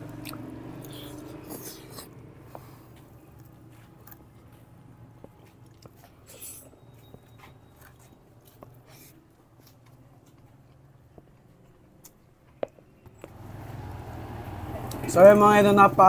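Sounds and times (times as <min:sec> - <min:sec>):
faint close chewing: 0:00.0 - 0:12.8.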